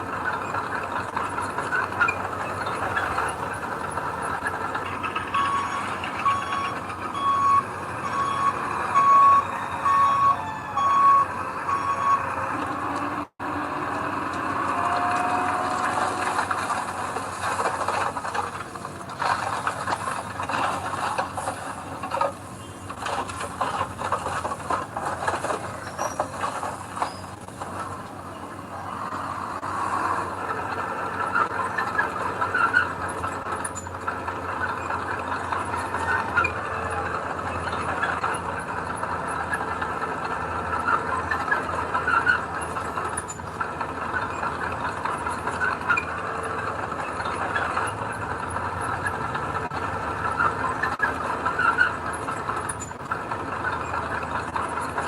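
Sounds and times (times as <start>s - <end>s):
heavy diesel machine running: 0.0s - 55.0s
reversing alarm beeping: 5.2s - 13.2s
knocks and rattles: 14.3s - 28.0s.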